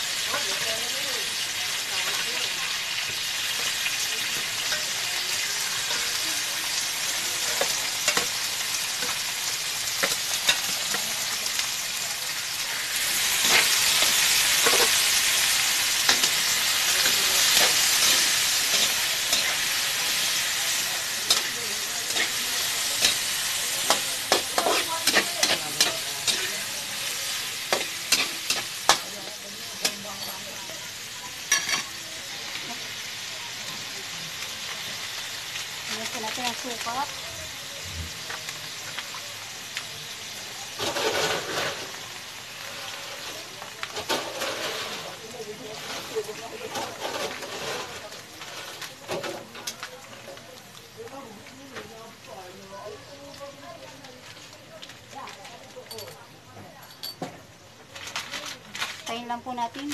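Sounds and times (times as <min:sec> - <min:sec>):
food sizzling in oil: 0:00.0 - 0:59.9
utensil scraping a pan: 0:12.7 - 0:30.4, 0:40.8 - 0:42.0, 0:42.6 - 0:49.5.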